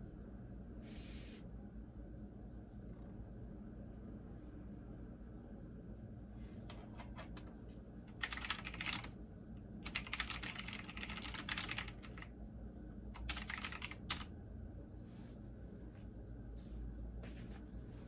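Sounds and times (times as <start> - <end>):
steady low hum: 0.0 - 18.0
typing on a computer keyboard: 8.1 - 9.1, 9.8 - 12.3, 13.2 - 14.3.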